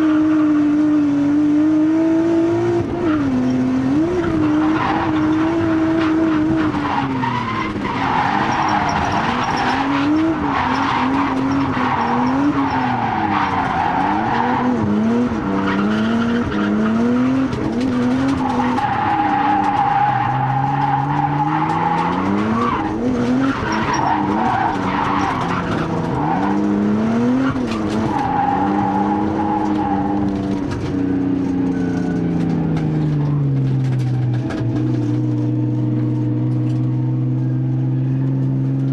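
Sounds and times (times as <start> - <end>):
car engine revving: 0.0 - 38.9
tyre squeal: 4.2 - 14.8, 18.2 - 26.8.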